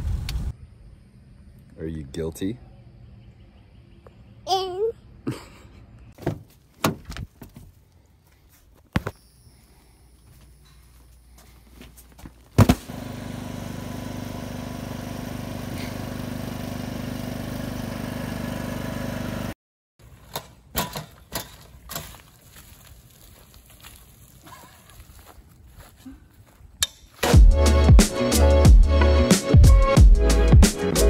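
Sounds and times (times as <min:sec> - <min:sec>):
machine humming: 0:12.8 - 0:19.4.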